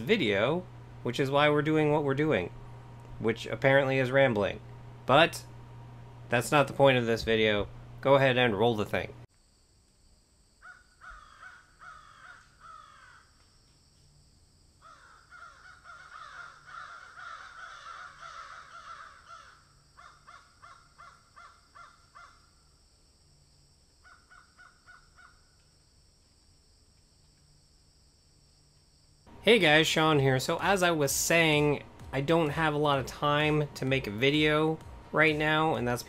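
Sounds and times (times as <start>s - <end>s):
flock of birds calling: 15.0s - 19.6s.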